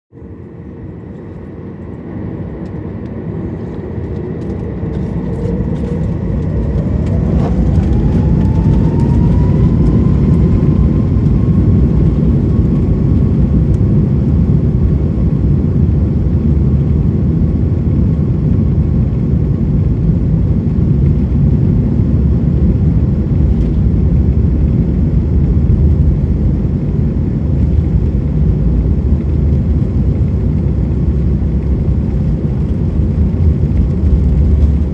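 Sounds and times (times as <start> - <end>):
jet engines spooling up: 0.2 - 15.0.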